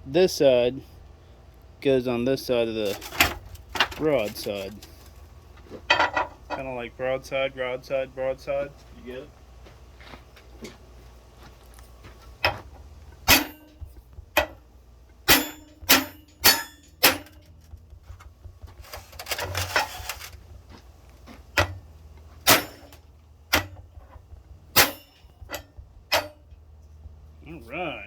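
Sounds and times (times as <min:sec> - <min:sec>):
scraping rustle: 0:02.7 - 0:05.9, 0:17.4 - 0:20.9
metal tool tapping steel: 0:13.3 - 0:13.8, 0:15.3 - 0:17.5, 0:22.5 - 0:23.8, 0:24.8 - 0:26.5.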